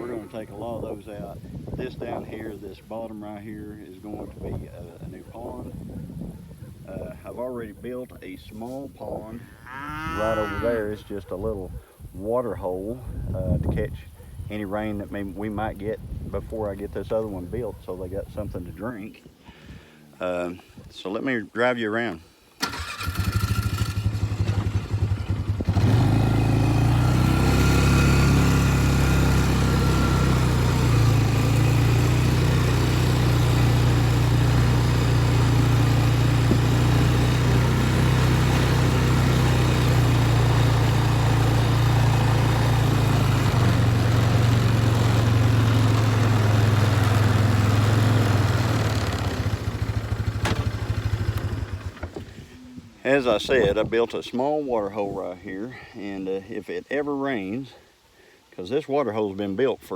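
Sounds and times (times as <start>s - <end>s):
vehicle engine driving off: 22.6s - 52.2s.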